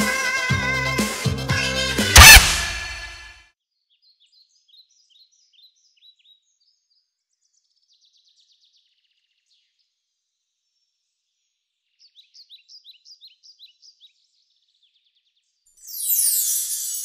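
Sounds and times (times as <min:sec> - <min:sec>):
music: 0:00.0 - 0:03.4, 0:15.9 - 0:17.0.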